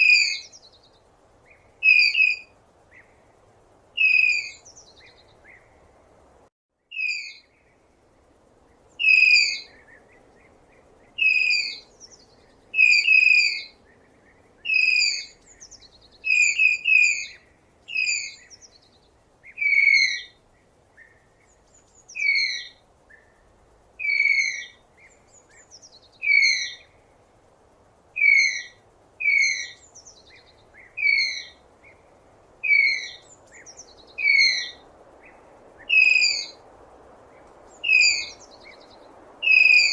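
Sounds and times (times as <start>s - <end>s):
faint steady hiss: 0.0s - 39.9s
tapir whistling squeals: 37.8s - 38.3s, 39.4s - 39.9s.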